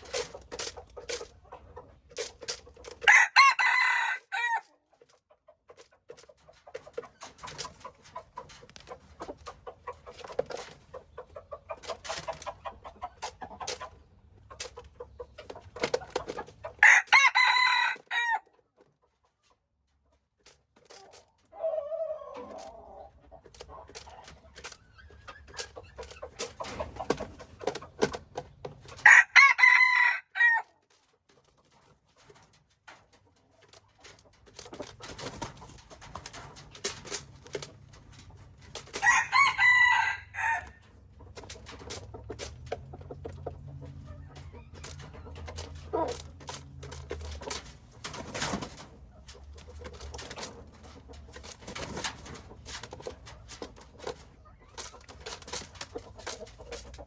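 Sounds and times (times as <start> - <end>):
chicken clucking: 0.0 - 57.0
rooster crowing: 3.1 - 4.6, 16.8 - 18.4, 29.0 - 30.7, 39.0 - 40.8.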